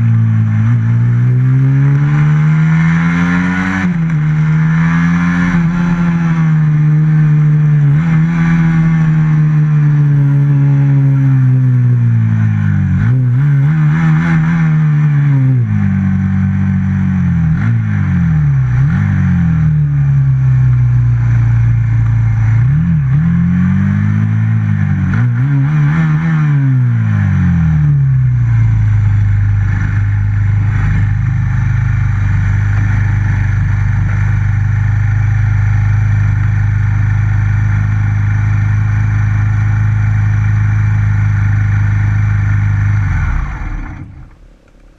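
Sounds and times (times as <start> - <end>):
motorcycle engine revving: 0.0 - 44.9
motorcycle engine idling: 28.2 - 44.9.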